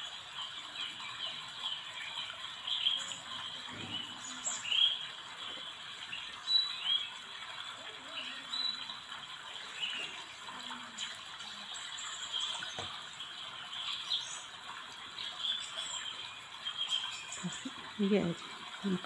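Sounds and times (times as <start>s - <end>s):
faint distant voice: 7.6s - 9.0s, 9.9s - 11.9s.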